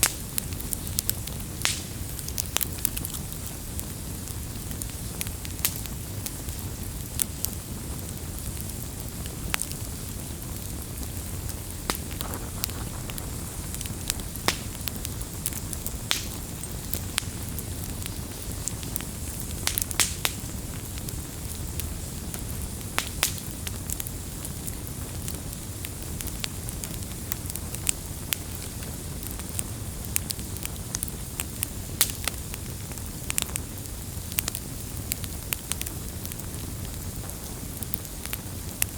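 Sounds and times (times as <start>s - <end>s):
sharp pops and snaps: 0.0s - 3.8s, 11.5s - 20.6s, 22.6s - 23.9s
campfire crackling: 0.0s - 38.9s.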